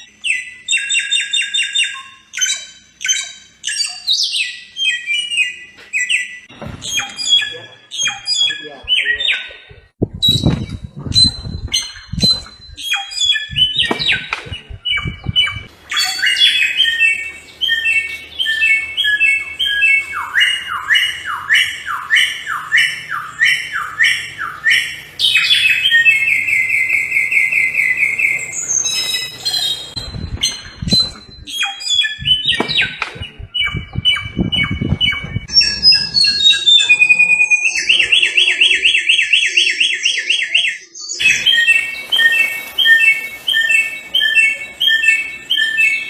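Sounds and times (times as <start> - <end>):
low thumps: 10.0 - 12.8, 13.4 - 15.7, 30.0 - 31.5, 32.2 - 36.8
bird singing whistled phrases: 10.2 - 46.0.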